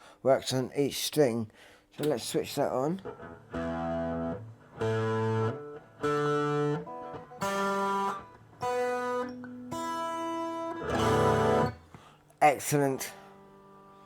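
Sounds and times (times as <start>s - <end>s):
fuzz guitar notes: 3.0s - 12.0s.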